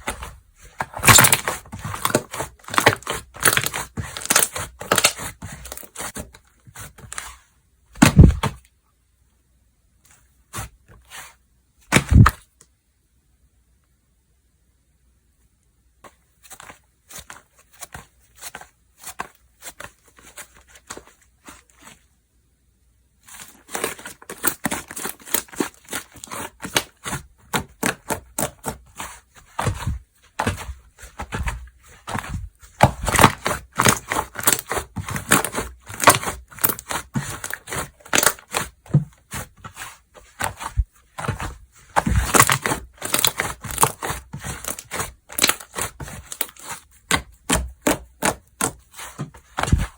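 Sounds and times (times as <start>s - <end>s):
slime squishing and popping: 42.0s - 46.7s.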